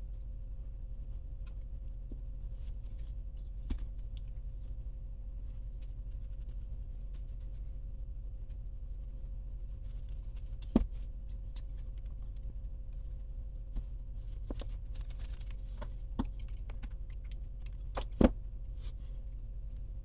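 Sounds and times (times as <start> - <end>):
low hum: 0.0 - 20.0
metal tools clinking: 14.5 - 18.3.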